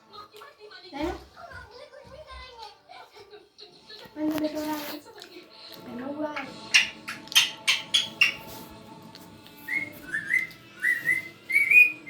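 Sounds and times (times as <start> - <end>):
parrot harsh chirps: 6.6 - 8.6
parrot whistling: 6.7 - 8.6, 9.7 - 12.0.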